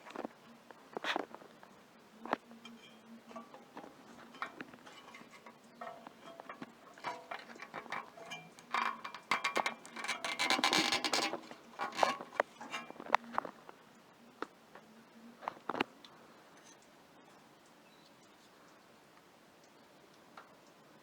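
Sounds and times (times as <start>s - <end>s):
rustling scrape: 0.0s - 1.6s, 2.2s - 13.7s
clicks and taps of wires: 2.2s - 13.6s.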